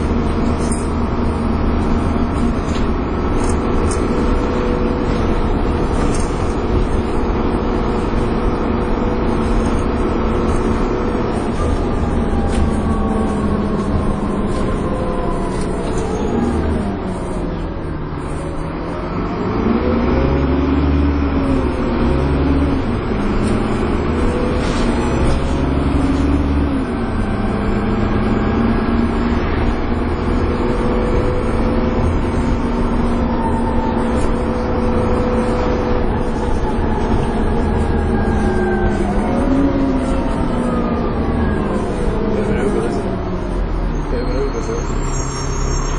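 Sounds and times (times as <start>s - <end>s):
bus diesel engine: 0.0s - 45.9s.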